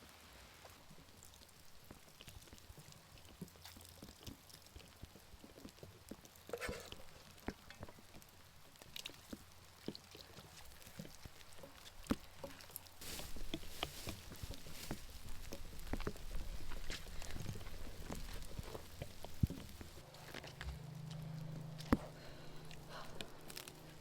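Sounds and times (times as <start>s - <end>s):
light rain pattering: 0.0s - 20.2s.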